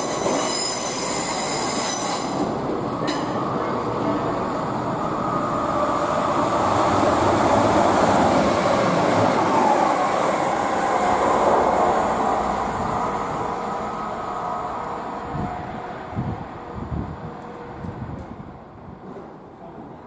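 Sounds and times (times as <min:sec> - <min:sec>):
train running on rails: 0:00.0 - 0:20.0.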